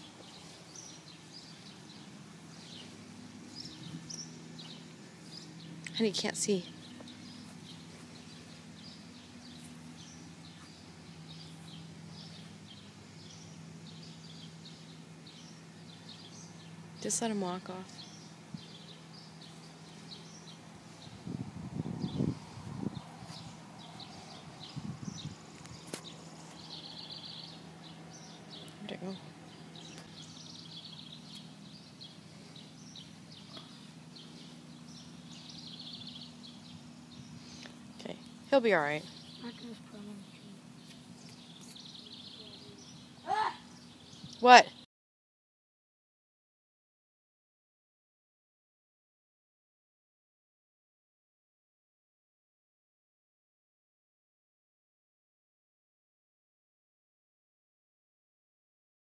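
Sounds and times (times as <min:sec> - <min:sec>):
low rumbling noise: 0:00.0 - 0:43.3
small birds chirping: 0:00.0 - 0:44.9.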